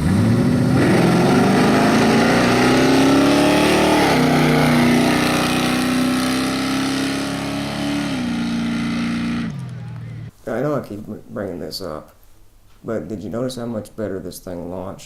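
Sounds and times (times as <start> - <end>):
engine accelerating hard: 0.0 - 10.3.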